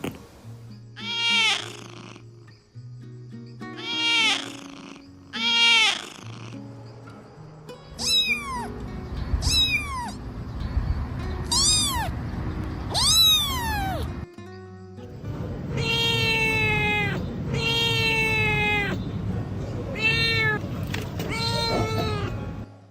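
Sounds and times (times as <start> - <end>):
kittens meowing: 1.0 - 2.3, 3.7 - 6.6, 8.0 - 8.8, 9.4 - 10.2, 11.4 - 12.2, 12.9 - 14.2, 15.7 - 19.0, 19.9 - 22.4.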